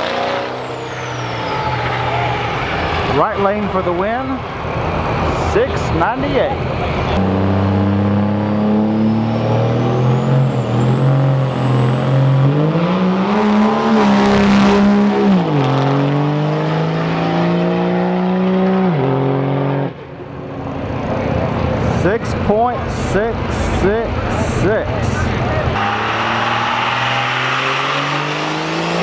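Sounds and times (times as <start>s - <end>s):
high turbo whistle: 0.0s - 3.8s, 21.8s - 28.4s
diesel pickup engine at full throttle: 0.0s - 29.0s.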